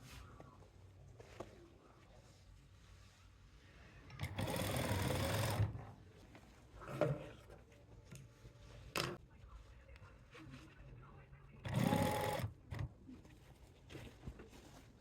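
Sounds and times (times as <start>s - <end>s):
sewing machine stitching: 4.2s - 5.8s, 11.7s - 12.9s.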